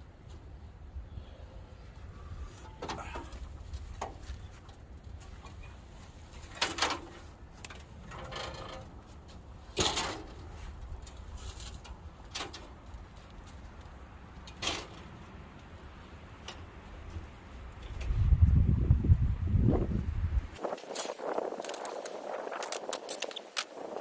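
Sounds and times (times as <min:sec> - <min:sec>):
wind rumble on microphone: 0:16.8 - 0:24.0.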